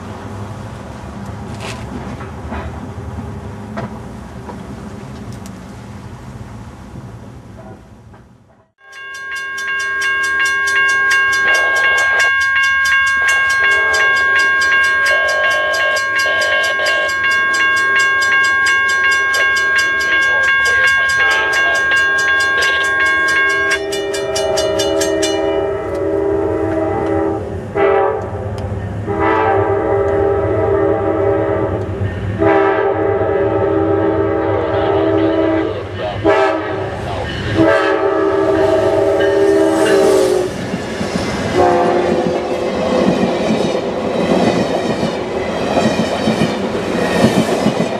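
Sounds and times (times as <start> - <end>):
crossing warning bell ringing: 8.7 - 27.4, 33.6 - 40.6
locomotive horn blasts: 10.4 - 28.4, 29.0 - 31.8, 32.4 - 40.5, 41.6 - 42.4.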